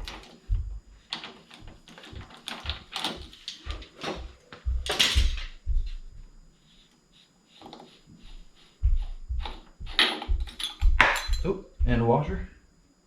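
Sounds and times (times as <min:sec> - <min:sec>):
dull thumps: 0:00.0 - 0:06.4, 0:07.7 - 0:12.6
metal clinks and knocks: 0:01.1 - 0:05.7, 0:09.8 - 0:11.6.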